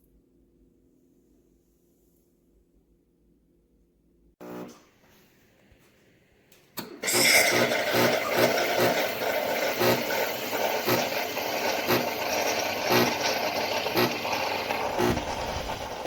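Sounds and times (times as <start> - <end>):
espresso machine pump pulsing: 4.4 - 4.8, 6.8 - 16.0.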